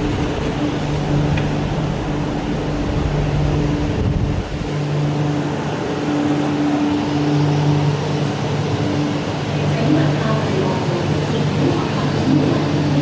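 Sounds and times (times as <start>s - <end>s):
low rumble: 0.0s - 9.0s
metro train electrical hum: 0.0s - 13.0s.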